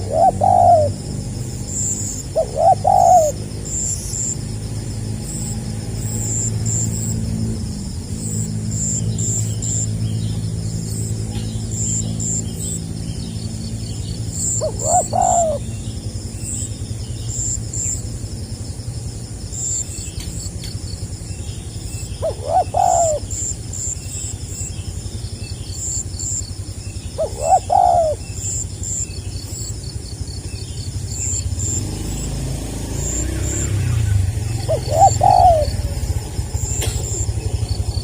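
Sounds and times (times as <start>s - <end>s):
dove cooing: 0.0s - 7.4s, 14.2s - 15.8s, 22.2s - 24.7s, 27.2s - 29.0s, 31.2s - 38.0s
steady high chirping: 0.0s - 38.0s.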